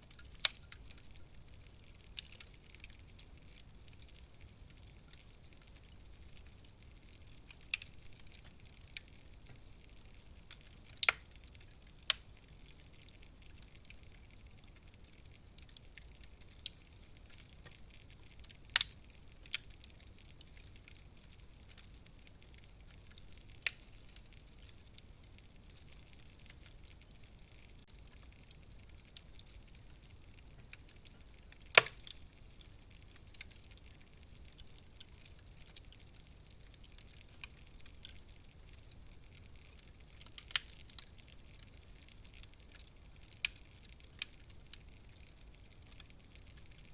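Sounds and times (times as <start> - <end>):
wood fire crackling: 0.0 - 46.9
sharp pops of fire: 10.5 - 12.3, 30.3 - 32.4.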